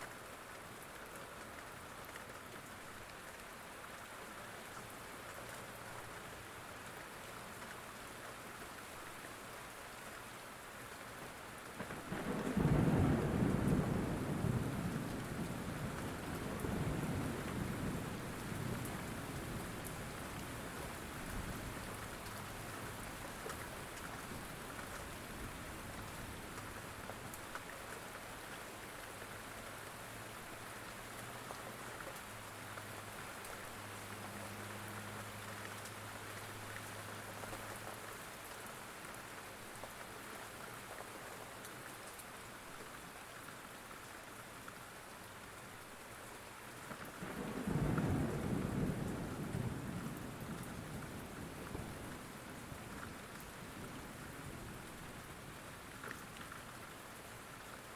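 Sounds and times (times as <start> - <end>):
steady rain falling: 0.0 - 57.9
low rumble of thunder: 11.8 - 27.1, 47.1 - 55.8.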